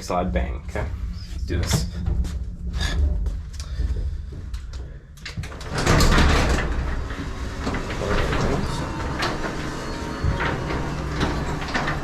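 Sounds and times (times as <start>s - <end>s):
garage door rattling and rumbling: 0.0s - 12.0s
garage door opener running: 5.2s - 12.0s.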